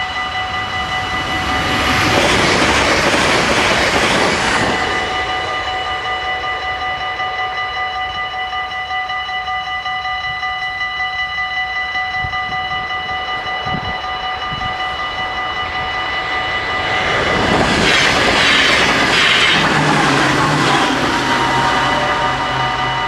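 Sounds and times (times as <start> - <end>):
level crossing bells ringing: 0.0 - 23.0
train passing: 0.0 - 23.0.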